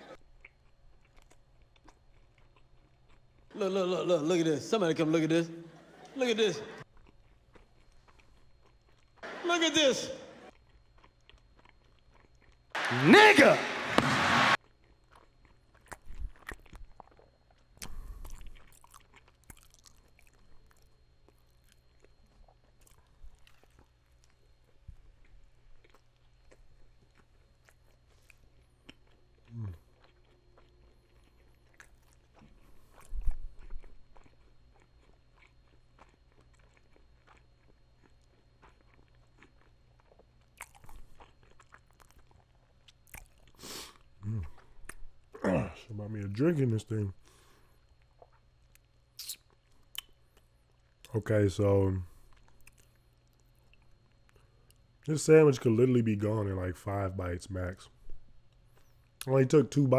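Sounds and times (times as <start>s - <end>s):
wet mouth chewing sounds: 0.1s - 3.5s, 6.8s - 9.2s, 10.5s - 12.7s, 14.6s - 45.4s, 47.3s - 51.1s, 52.1s - 55.0s
crunching bites: 13.9s - 24.4s, 25.8s - 45.0s.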